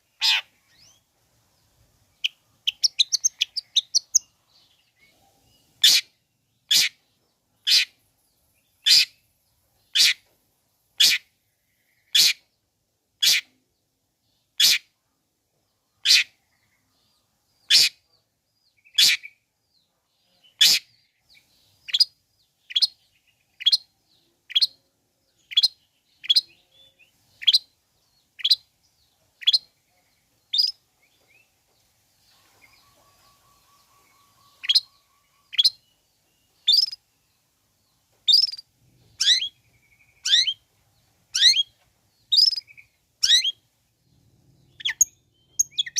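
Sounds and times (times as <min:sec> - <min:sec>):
bird giving harsh calls: 0:00.1 - 0:00.5
faint high bird trill: 0:32.3 - 0:36.0, 0:36.6 - 0:37.0, 0:38.3 - 0:40.7, 0:41.3 - 0:43.6, 0:44.6 - 0:45.9.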